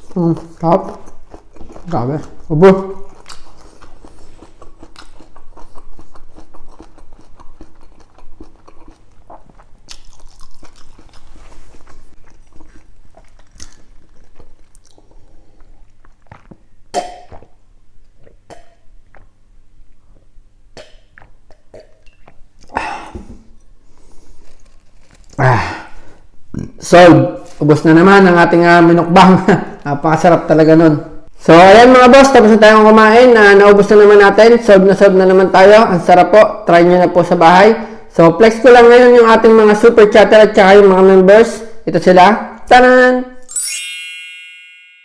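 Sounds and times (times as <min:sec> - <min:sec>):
person chewing: 0:00.0 - 0:26.8
mouth clicks and smacks: 0:15.8 - 0:19.4, 0:20.1 - 0:23.7
sudden sounds from eater: 0:20.1 - 0:26.8.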